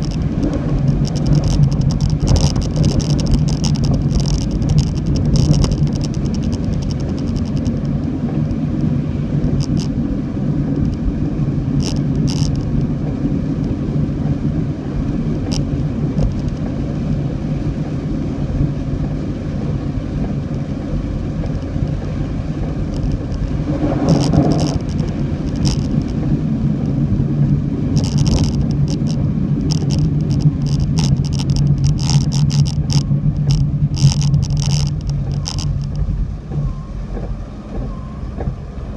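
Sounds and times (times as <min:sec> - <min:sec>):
sharp ticks: 0:00.0 - 0:10.0, 0:11.8 - 0:13.8, 0:21.4 - 0:27.0, 0:27.9 - 0:38.6
car driving on road drone: 0:00.0 - 0:38.9.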